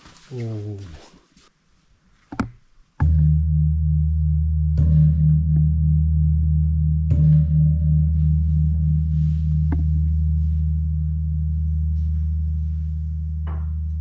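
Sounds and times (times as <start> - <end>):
large gong ringing: 3.0 - 11.9.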